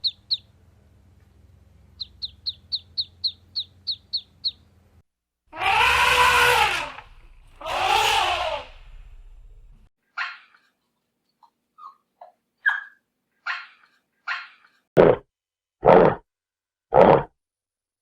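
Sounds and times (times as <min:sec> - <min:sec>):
bird chirping: 0:00.0 - 0:00.6, 0:01.9 - 0:04.8
long rising and falling animal calls: 0:05.5 - 0:09.7.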